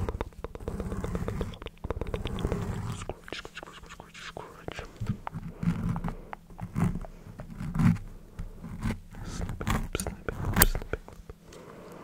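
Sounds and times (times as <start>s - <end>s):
mouth clicks and smacks: 0.0s - 7.2s, 9.2s - 11.4s.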